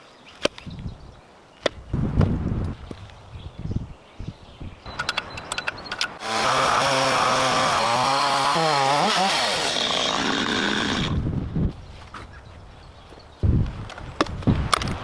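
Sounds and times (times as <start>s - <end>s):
sharp clicks: 4.9s - 6.2s
chainsaw cutting wood: 6.2s - 11.2s.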